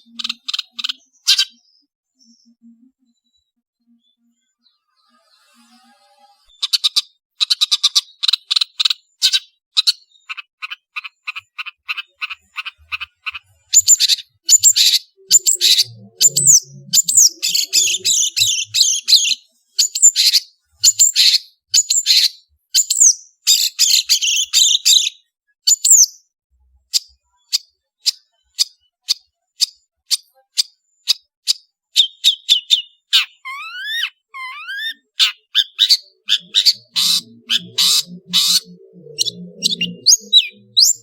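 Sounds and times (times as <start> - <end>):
shrike singing: 11.2 - 20.2, 32.0 - 41.0.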